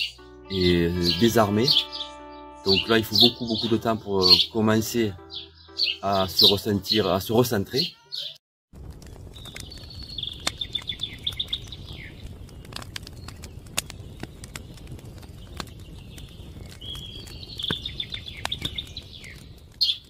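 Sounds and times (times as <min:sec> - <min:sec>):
songbird trilling: 0:05.2 - 0:06.6
campfire crackling and popping: 0:08.7 - 0:20.0.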